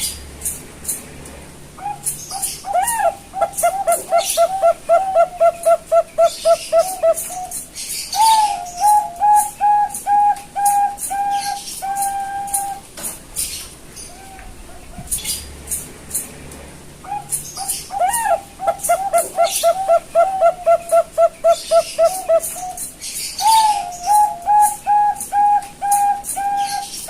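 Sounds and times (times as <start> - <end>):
dove cooing: 1.8 - 12.9, 17.0 - 27.0.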